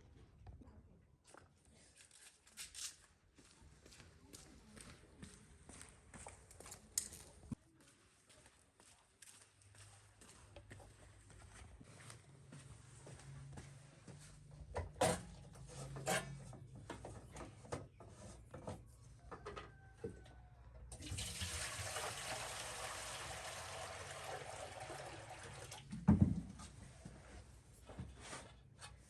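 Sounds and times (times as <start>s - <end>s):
water pouring: 21.0s - 25.9s
thump: 25.9s - 26.5s.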